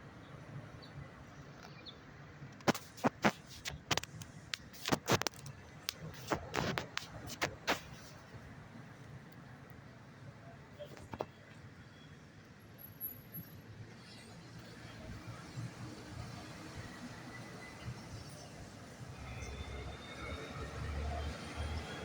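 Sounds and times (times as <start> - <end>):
traffic rumble: 0.0 - 22.0
sharp clicks and knocks: 2.6 - 8.0.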